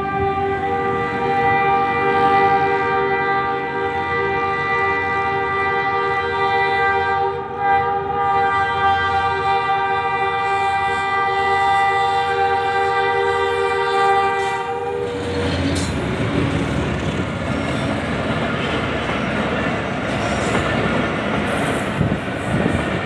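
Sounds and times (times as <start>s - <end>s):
locomotive horn blast: 0.0s - 16.4s
locomotive engine: 10.0s - 23.0s.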